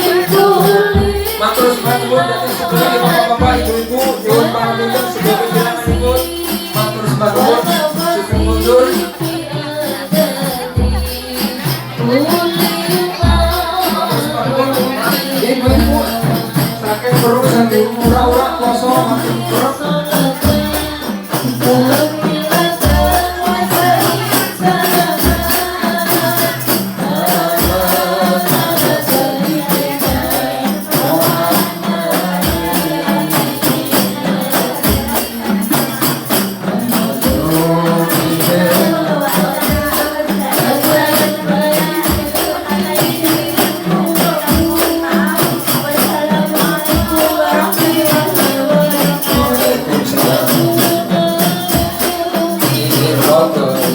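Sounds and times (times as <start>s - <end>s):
frame drums with jingling percussion: 0.0s - 53.9s
group singing: 0.0s - 53.9s.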